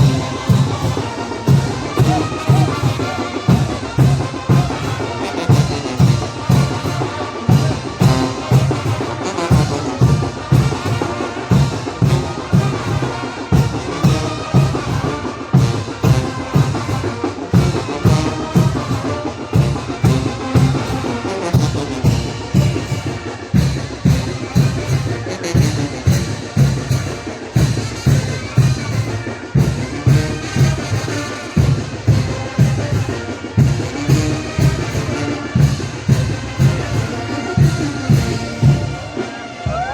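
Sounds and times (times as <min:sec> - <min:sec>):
bass drum beat: 0:00.0 - 0:06.9
brass playing tune: 0:00.0 - 0:39.9
sharp percussion strokes: 0:00.0 - 0:39.9.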